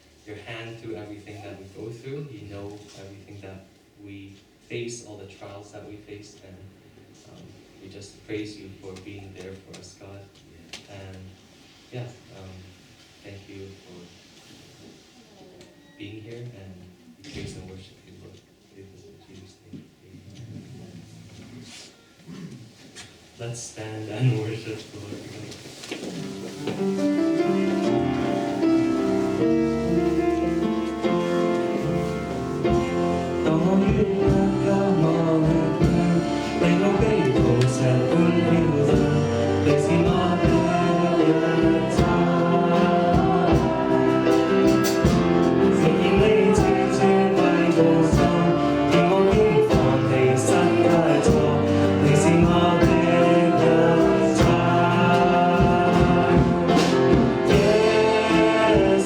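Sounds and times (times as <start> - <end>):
worship song singing: 23.4 - 59.0.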